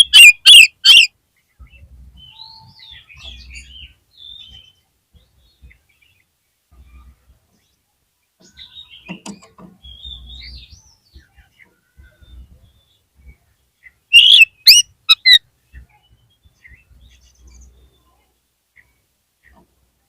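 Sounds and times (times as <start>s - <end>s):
bird singing whistled phrases: 0.0s - 1.1s, 14.1s - 15.4s.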